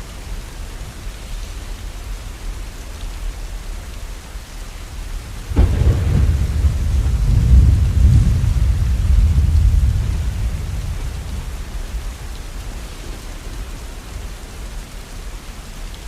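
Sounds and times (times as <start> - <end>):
steady rain falling: 0.0 - 16.0
thunderclap rumbling: 5.2 - 15.0.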